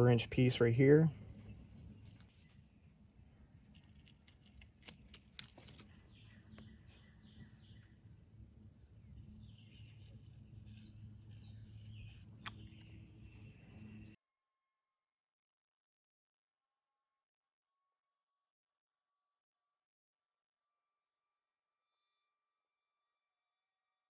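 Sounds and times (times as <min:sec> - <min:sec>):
faint birds chirping: 0:00.0 - 0:14.2.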